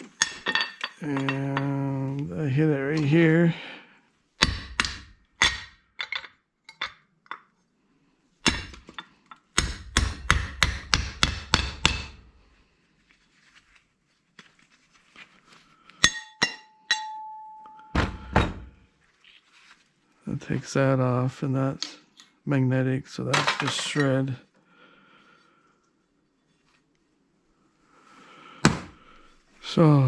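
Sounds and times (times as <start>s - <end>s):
hammer striking metal punch: 8.4s - 8.8s, 9.6s - 12.2s
ringing metal tone: 16.0s - 18.4s.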